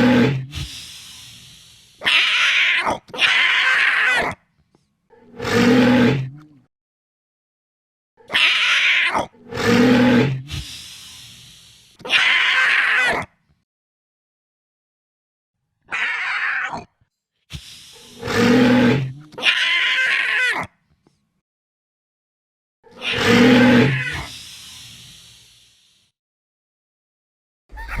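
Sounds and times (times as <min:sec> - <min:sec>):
shrill creature screeches: 0:00.0 - 0:00.4, 0:02.0 - 0:04.4, 0:05.3 - 0:06.3, 0:08.3 - 0:10.8, 0:12.0 - 0:13.3, 0:15.9 - 0:16.9, 0:17.9 - 0:20.7, 0:22.9 - 0:24.4
dinosaur roars: 0:00.0 - 0:00.6, 0:05.3 - 0:06.6, 0:09.1 - 0:10.8, 0:18.0 - 0:19.5, 0:23.0 - 0:24.3
low creature growls: 0:00.0 - 0:00.7, 0:05.2 - 0:06.7, 0:09.2 - 0:10.8, 0:18.0 - 0:19.4, 0:23.0 - 0:24.3.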